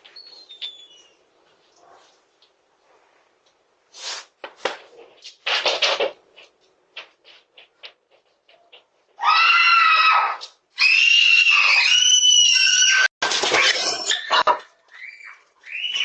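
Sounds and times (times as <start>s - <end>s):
pig squealing: 9.2s - 16.0s.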